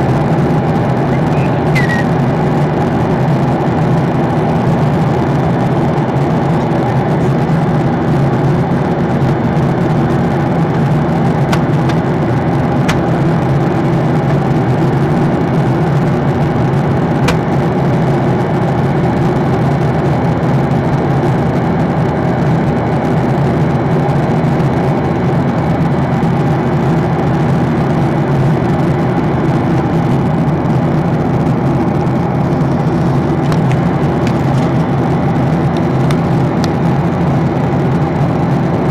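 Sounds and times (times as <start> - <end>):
airliner cabin drone: 0.0 - 38.9.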